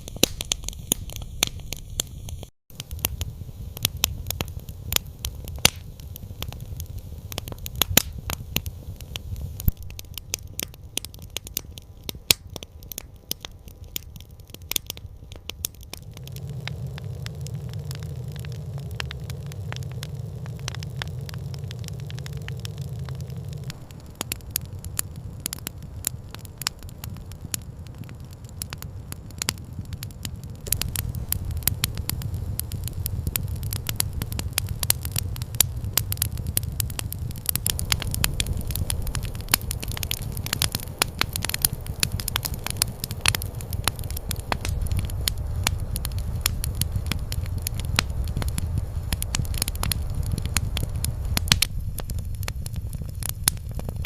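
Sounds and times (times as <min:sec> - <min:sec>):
campfire crackling and popping: 0:00.0 - 0:54.0
low rumble: 0:15.8 - 0:54.0.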